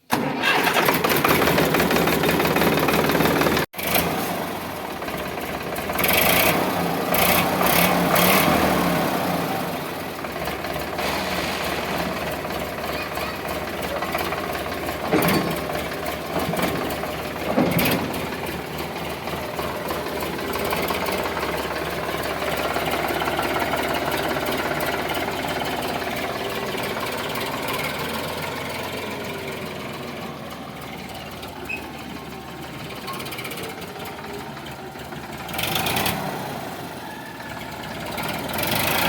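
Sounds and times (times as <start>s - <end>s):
tractor diesel engine chugging: 0.0s - 39.0s
sharp clunks: 15.0s - 18.4s.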